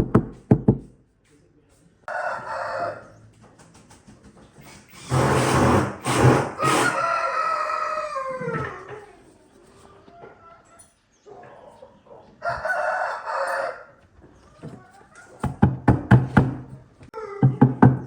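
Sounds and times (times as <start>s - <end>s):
rooster crowing: 2.1s - 3.1s, 6.6s - 9.1s, 12.4s - 14.0s.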